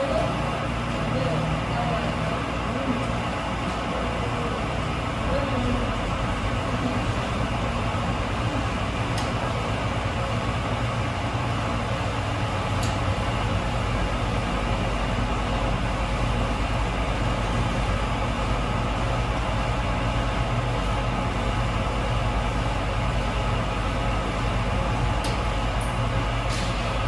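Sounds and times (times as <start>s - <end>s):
washing machine humming: 0.0s - 27.0s.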